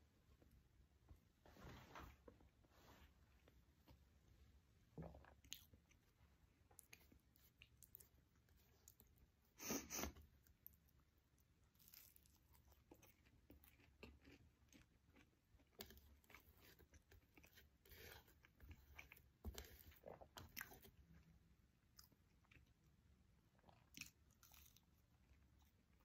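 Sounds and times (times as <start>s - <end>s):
soft food crunches: 10.4s - 21.2s, 23.5s - 26.0s
person chewing and biting: 11.8s - 20.9s.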